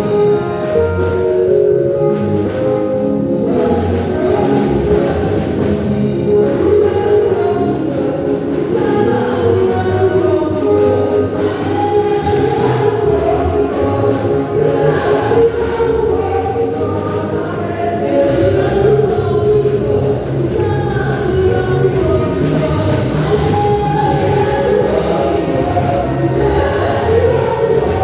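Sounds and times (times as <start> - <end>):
choir singing gospel music: 0.0 - 28.0
instrumental backing with bass line: 0.0 - 28.0.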